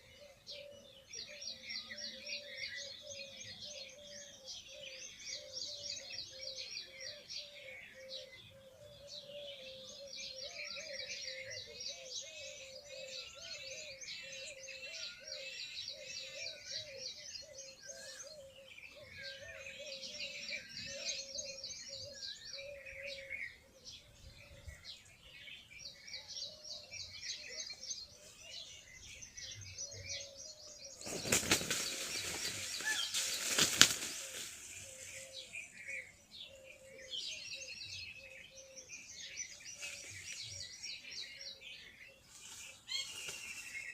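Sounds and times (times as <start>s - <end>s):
small birds chirping: 0.0s - 43.9s
wing flapping: 31.0s - 34.6s.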